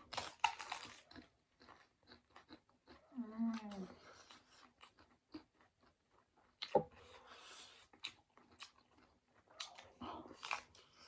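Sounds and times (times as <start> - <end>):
person chewing crunchy food: 0.0 - 11.0.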